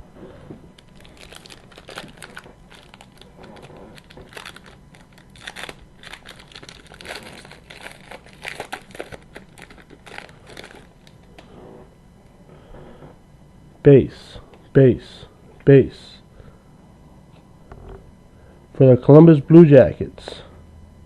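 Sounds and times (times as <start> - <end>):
foil wrapper crinkling: 0.8 - 11.3.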